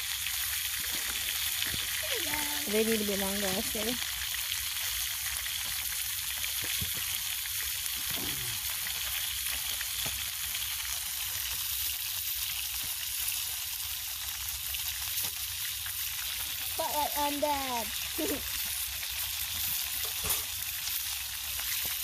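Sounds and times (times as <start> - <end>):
grease popping: 0.0 - 16.9
burgers sizzling in a pan: 0.0 - 22.0.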